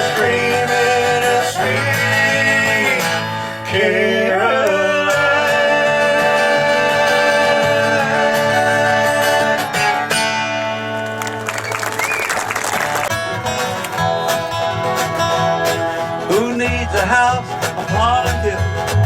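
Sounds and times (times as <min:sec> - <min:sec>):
country music with guitar: 0:00.0 - 0:19.0.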